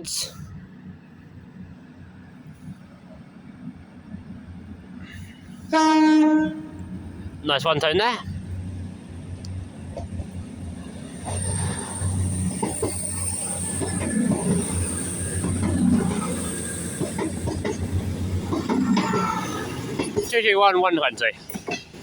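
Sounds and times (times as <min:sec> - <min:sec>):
diesel train drone: 0:00.0 - 0:22.0
wheels clacking on track: 0:06.6 - 0:22.0.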